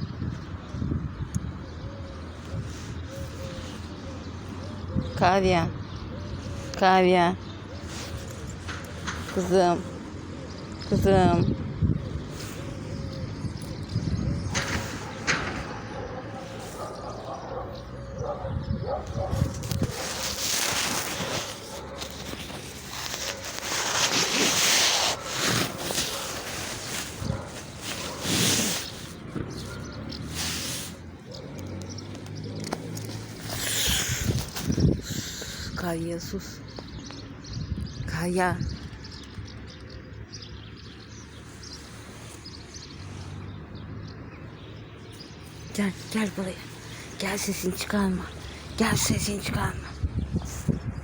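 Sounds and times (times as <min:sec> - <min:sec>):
small birds chirping: 0:00.0 - 0:51.0
rustling and rubbing: 0:19.0 - 0:35.4, 0:41.1 - 0:43.5.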